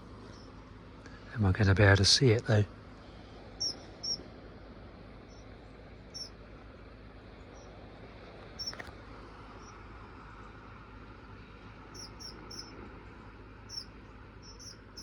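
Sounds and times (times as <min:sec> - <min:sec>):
songbird call notes: 0:00.0 - 0:00.7, 0:03.2 - 0:04.3, 0:05.2 - 0:06.6, 0:07.4 - 0:08.9, 0:11.3 - 0:15.0.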